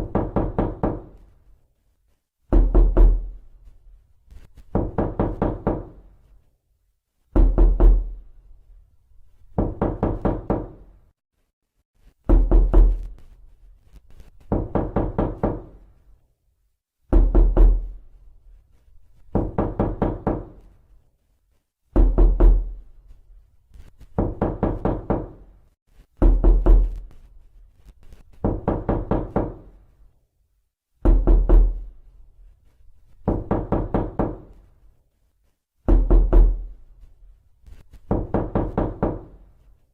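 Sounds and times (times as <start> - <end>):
knocking on a door: 0.0 - 1.2, 2.5 - 3.4, 4.7 - 6.1, 7.3 - 8.2, 9.5 - 10.9, 12.2 - 13.1, 14.5 - 15.8, 17.1 - 18.0, 19.3 - 20.7, 21.9 - 22.8, 24.1 - 25.5, 26.2 - 27.1, 28.4 - 29.8, 31.0 - 31.9, 33.2 - 34.6, 35.9 - 36.7, 38.0 - 39.5.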